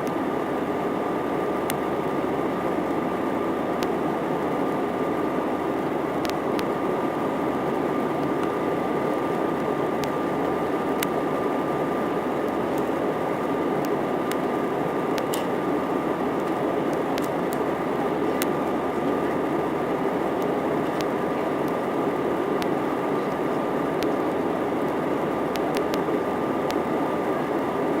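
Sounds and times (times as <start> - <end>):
faint steady whine: 0.0 - 28.0
jet cabin noise: 0.0 - 28.0
faint ticks: 25.5 - 26.0.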